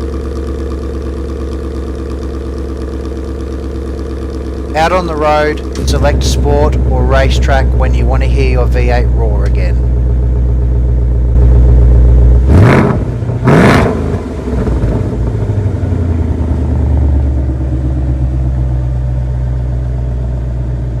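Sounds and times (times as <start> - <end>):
car engine idling: 0.0 - 21.0
engine revving: 4.7 - 9.8, 11.3 - 17.6.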